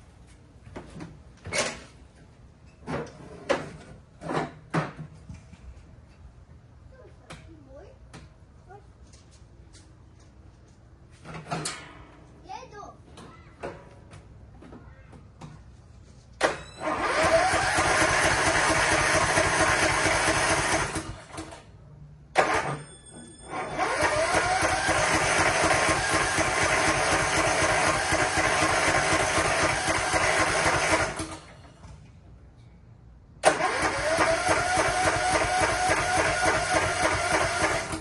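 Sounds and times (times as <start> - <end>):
electric starter cranking engine: 16.4 - 21.7, 22.3 - 22.8, 23.5 - 31.6, 33.4 - 38.0.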